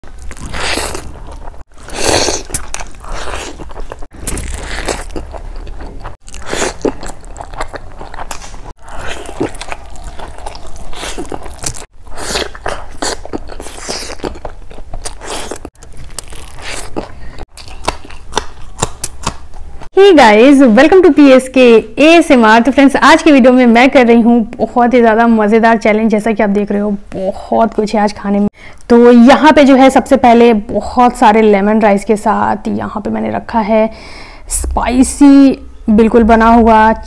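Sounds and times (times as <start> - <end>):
close chewing and biting: 0.0 - 19.9.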